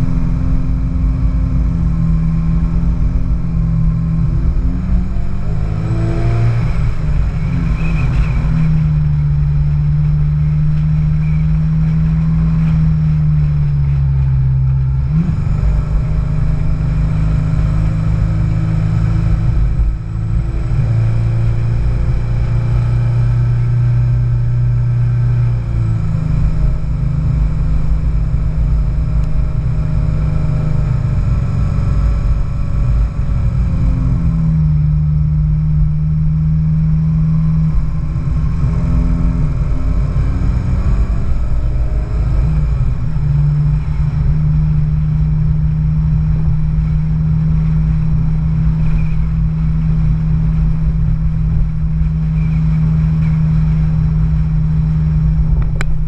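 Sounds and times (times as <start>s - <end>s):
car engine and exhaust running: 0.0s - 56.0s.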